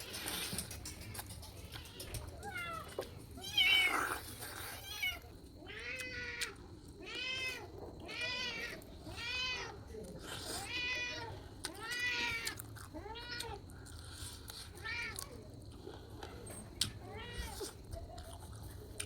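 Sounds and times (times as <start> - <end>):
cat meowing: 1.7 - 4.2, 4.8 - 9.8.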